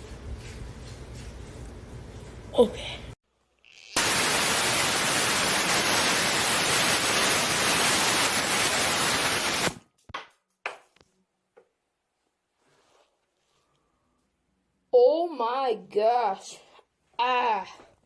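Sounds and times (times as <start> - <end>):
white noise hiss: 4.0 - 9.8.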